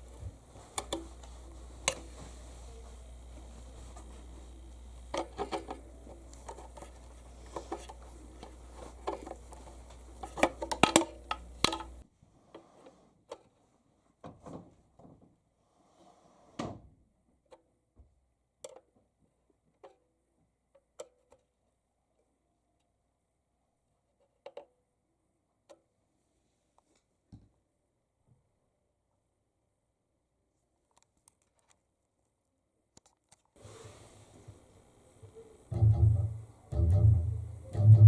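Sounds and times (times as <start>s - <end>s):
low electrical hum: 0.0s - 12.5s, 33.6s - 38.0s
background hiss: 0.0s - 14.8s, 33.5s - 38.0s.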